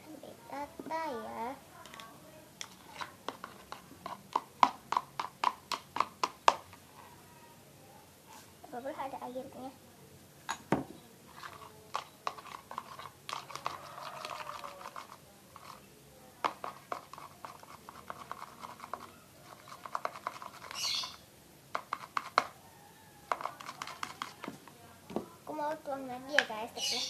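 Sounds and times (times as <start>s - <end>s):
spoon scraping bowl: 1.8s - 7.2s, 11.3s - 21.2s, 21.8s - 22.6s, 23.2s - 24.7s.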